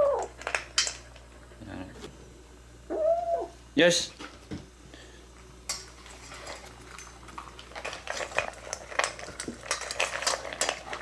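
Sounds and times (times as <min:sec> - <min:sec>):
cat food bowls clinking: 0:05.8 - 0:11.0.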